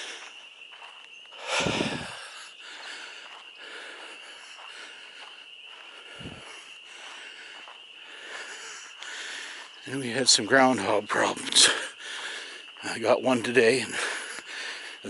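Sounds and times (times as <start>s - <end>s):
frog chorus trilling: 0.0s - 15.0s
low puffs on microphone: 1.4s - 2.2s.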